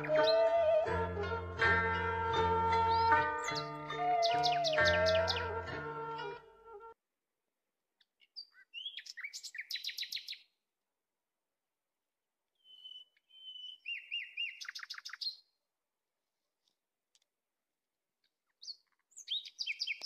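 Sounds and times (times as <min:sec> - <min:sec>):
songbird singing high notes: 0:00.0 - 0:06.8, 0:08.4 - 0:10.5, 0:12.6 - 0:15.5.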